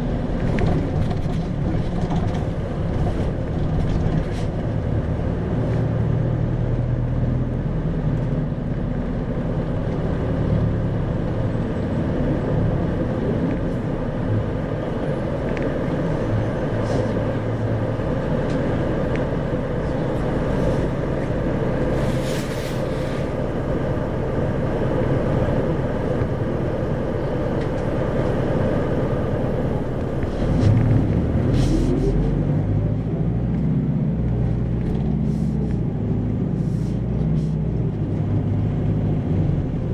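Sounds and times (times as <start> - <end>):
bus diesel engine: 0.0 - 39.9
road noise: 0.0 - 39.9
brief air hisses: 22.0 - 23.2.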